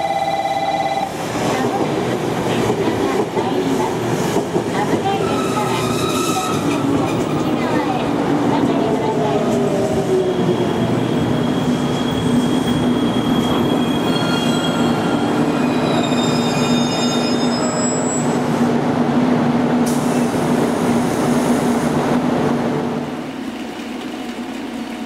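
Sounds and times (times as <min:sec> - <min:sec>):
train rolling rumble: 0:01.1 - 0:25.0
wheels and brakes squealing: 0:10.2 - 0:18.4.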